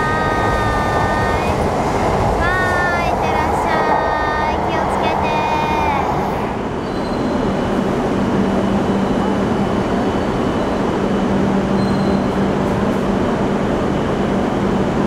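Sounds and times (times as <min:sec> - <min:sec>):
faint high whines: 0:00.0 - 0:11.1
high-speed train rumble: 0:00.0 - 0:15.0.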